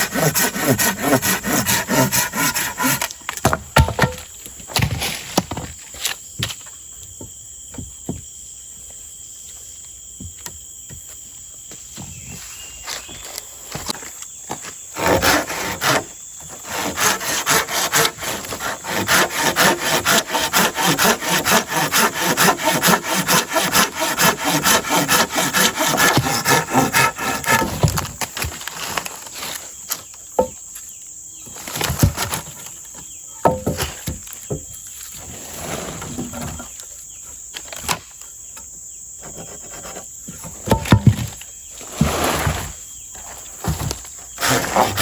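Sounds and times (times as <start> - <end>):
hand saw cutting wood: 0.0 - 4.2, 14.9 - 28.5, 43.8 - 45.0
wood knocking: 2.4 - 5.7, 30.4 - 30.6, 33.4 - 34.7, 40.6 - 41.4.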